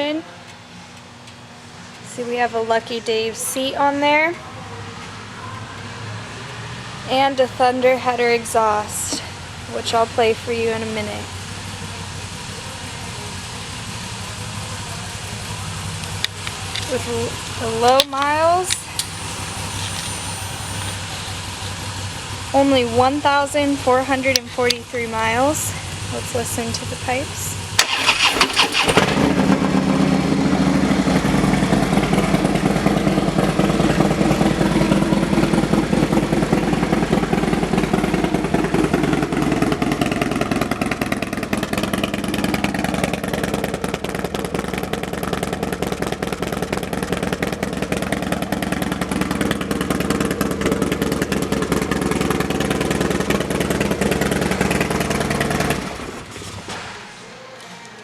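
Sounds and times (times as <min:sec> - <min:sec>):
motorcycle engine idling: 0:08.6 - 0:56.8.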